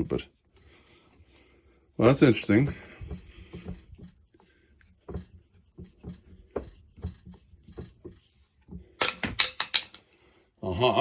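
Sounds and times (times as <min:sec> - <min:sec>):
hand tools clicking on metal parts: 0:09.0 - 0:10.1.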